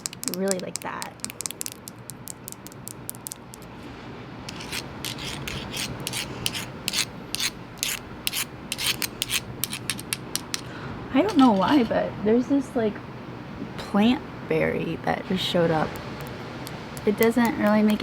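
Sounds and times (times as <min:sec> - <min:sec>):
fingernails tapping seashells: 0:00.0 - 0:03.7, 0:04.5 - 0:10.7, 0:16.0 - 0:18.0.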